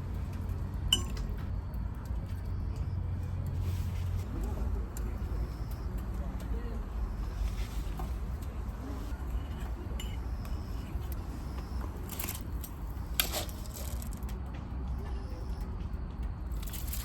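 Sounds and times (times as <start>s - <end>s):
steady low rumble: 0.0s - 17.0s
metal cookware clinks: 0.9s - 1.2s.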